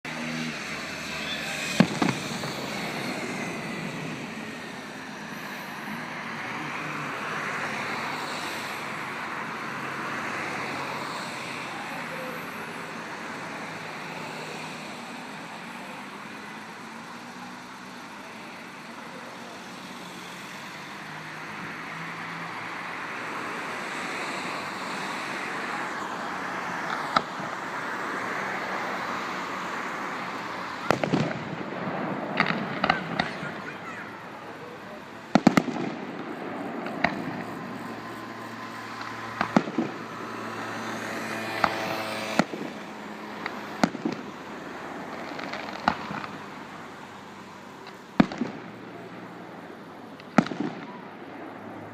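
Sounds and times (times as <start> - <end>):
crowd murmur: 0.0 - 51.9
distant traffic hum: 0.0 - 51.9
sharp cracks: 1.6 - 3.4, 30.4 - 34.0, 35.2 - 40.8, 41.5 - 44.4, 45.0 - 46.7, 47.8 - 48.9, 50.1 - 51.2.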